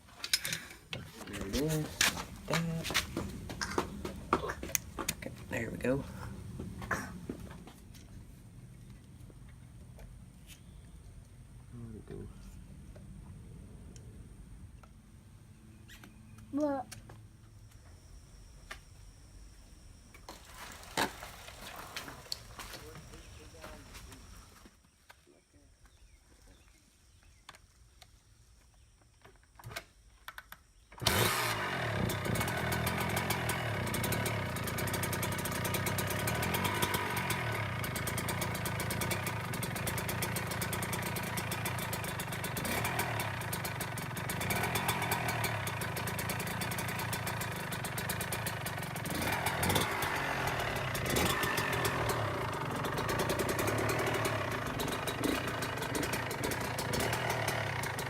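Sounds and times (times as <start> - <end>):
dirt bike engine idling: 0.4 - 7.9, 20.3 - 24.6, 31.1 - 58.0.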